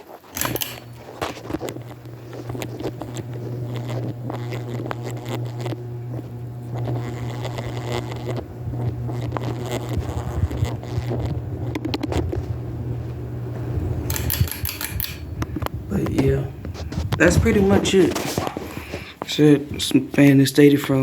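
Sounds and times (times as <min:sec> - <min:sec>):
ceiling fan motor hum: 0:00.0 - 0:21.0
switch click: 0:00.4 - 0:01.0, 0:14.1 - 0:15.5.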